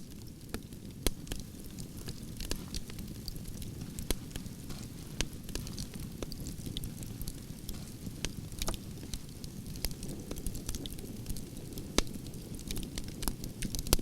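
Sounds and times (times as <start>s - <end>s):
burning logs crackling: 0.0s - 14.0s
low rush of flames: 0.0s - 14.0s.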